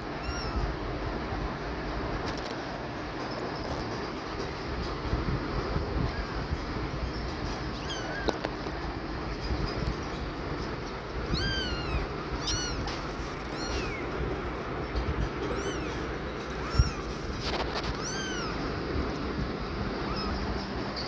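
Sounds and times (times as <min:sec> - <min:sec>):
kittens mewing: 0:00.0 - 0:00.8, 0:07.6 - 0:08.6, 0:09.6 - 0:21.0.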